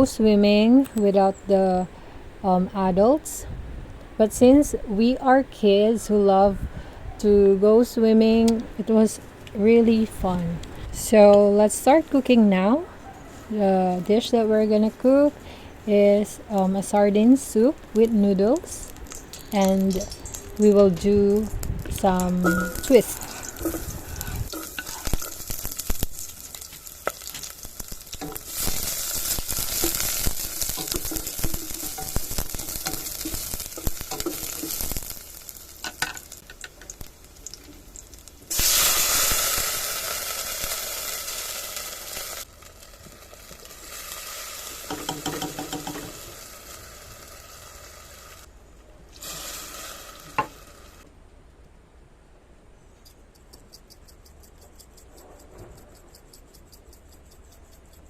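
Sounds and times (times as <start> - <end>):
food sizzling in oil: 16.2 - 48.5, 49.2 - 51.0
utensil clattering against pan: 44.9 - 46.2.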